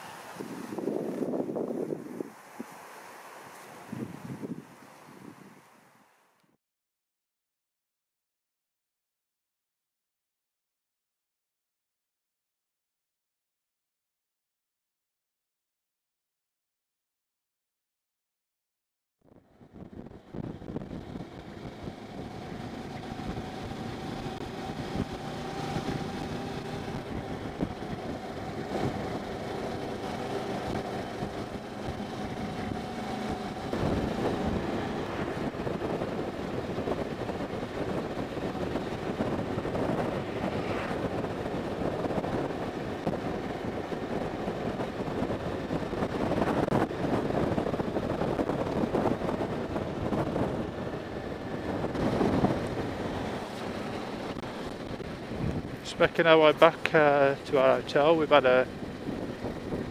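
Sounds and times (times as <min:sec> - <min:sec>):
wind rushing: 0:00.0 - 0:05.8, 0:19.5 - 0:59.9
motorcycle engine running: 0:19.8 - 0:46.4.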